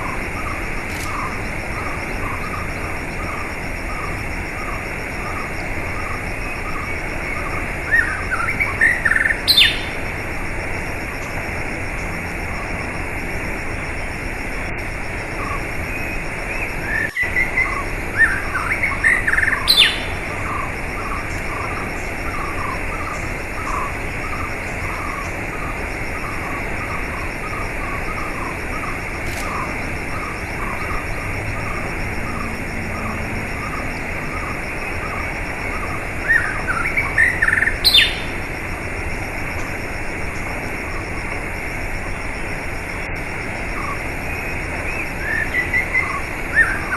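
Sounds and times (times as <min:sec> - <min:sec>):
small bird chirping: 0:00.0 - 0:10.0, 0:15.4 - 0:38.4
rushing water: 0:00.0 - 0:46.9.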